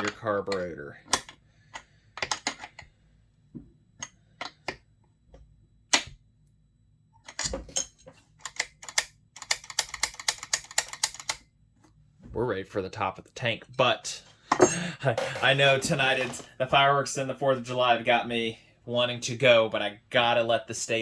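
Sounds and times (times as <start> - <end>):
metal tools clicking and knocking: 7.2 - 11.4.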